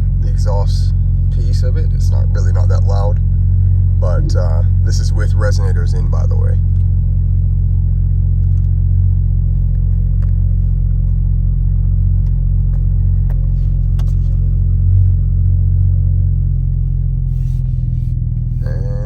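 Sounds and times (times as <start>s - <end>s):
car engine idling: 0.0s - 19.0s
deep exhaust rumble: 0.0s - 19.0s.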